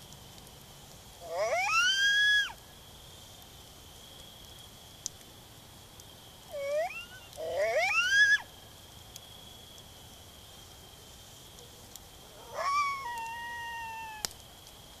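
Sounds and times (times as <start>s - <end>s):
coyote howls through phone speaker: 1.2s - 2.6s, 6.5s - 8.5s, 12.3s - 14.3s.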